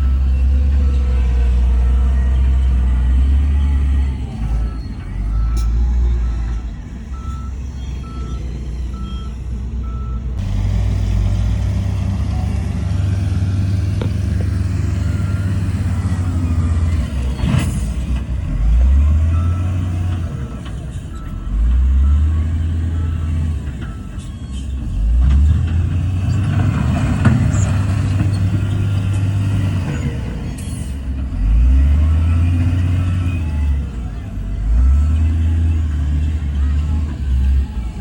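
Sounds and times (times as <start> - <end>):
reversing alarm beeping: 0.0 - 10.4, 14.5 - 17.4, 18.7 - 25.1
diesel machinery engine rumble: 0.0 - 38.0.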